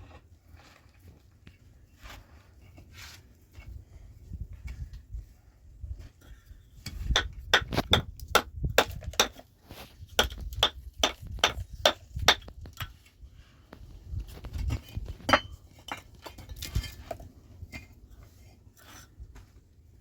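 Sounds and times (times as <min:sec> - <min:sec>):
sharp hammering blows: 0:10.2 - 0:12.5.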